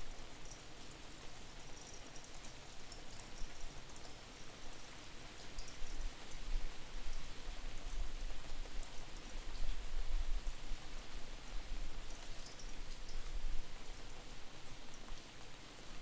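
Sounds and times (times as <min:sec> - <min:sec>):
rain falling: 0:00.1 - 0:16.0
drips ticking: 0:01.7 - 0:04.8, 0:05.4 - 0:06.0, 0:12.1 - 0:13.3.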